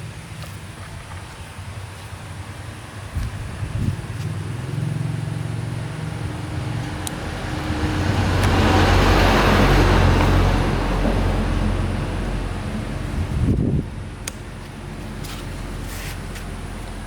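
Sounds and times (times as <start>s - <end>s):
vehicle engine passing by: 3.0s - 14.1s.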